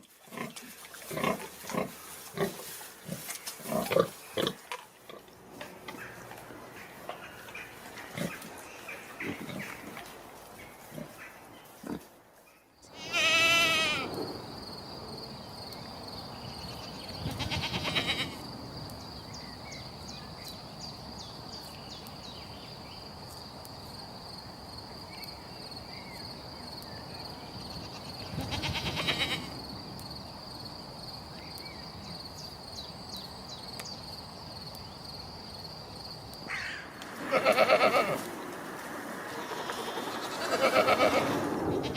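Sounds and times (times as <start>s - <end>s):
goat bleating: 13.0s - 14.1s, 17.3s - 18.4s, 27.9s - 29.5s, 37.2s - 38.3s, 39.4s - 41.9s.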